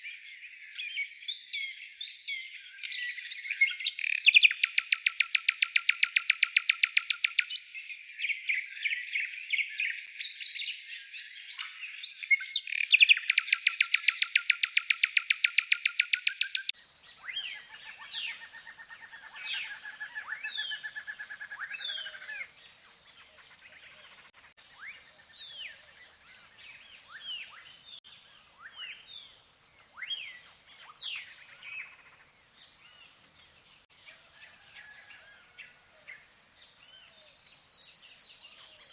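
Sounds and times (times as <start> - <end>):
birdsong with whistles: 0.8 - 9.0, 11.6 - 22.5, 23.1 - 32.2
bird pulsed trill: 4.1 - 7.8, 12.8 - 27.8.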